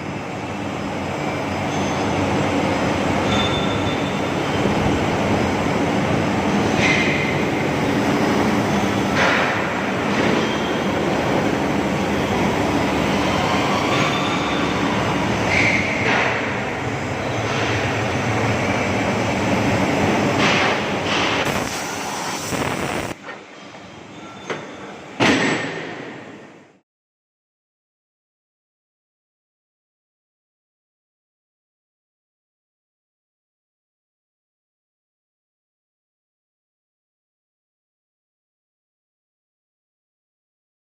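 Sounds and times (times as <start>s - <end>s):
loud metal clank: 25.2s - 26.4s.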